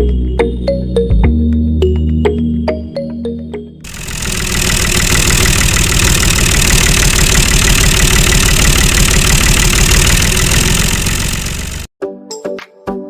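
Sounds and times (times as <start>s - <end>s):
engine idling: 3.9s - 11.9s.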